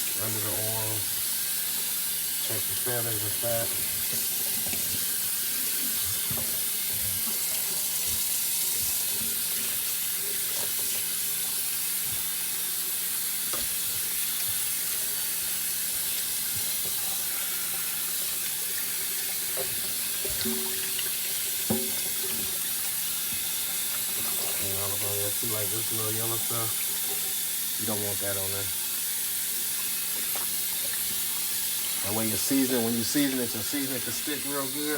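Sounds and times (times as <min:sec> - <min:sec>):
water running from a tap: 0:00.0 - 0:34.9.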